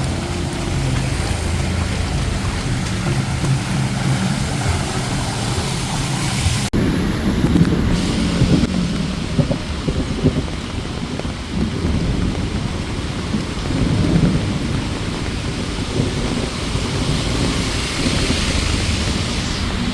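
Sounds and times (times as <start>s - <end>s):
heavy rain falling: 0.0s - 19.9s
low thunder rumble: 6.8s - 19.9s.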